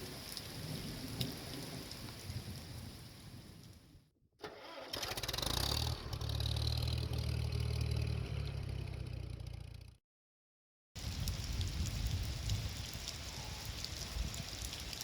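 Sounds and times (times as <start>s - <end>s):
rain falling: 0.0s - 3.9s, 11.0s - 15.0s
tractor diesel engine starting: 4.4s - 9.5s.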